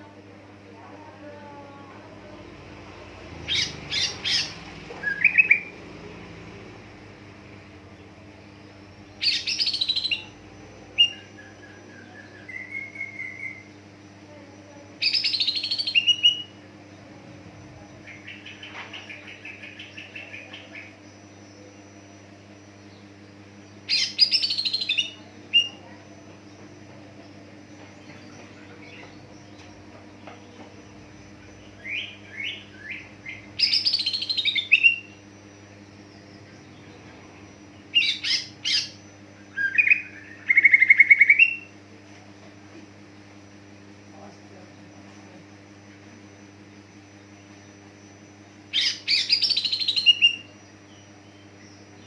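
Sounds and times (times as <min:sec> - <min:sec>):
steady low hum: 0:00.0 - 0:52.0
bird singing rapid chirps: 0:02.3 - 0:06.8, 0:07.4 - 0:13.8, 0:15.0 - 0:21.0, 0:22.8 - 0:41.7, 0:47.6 - 0:52.0.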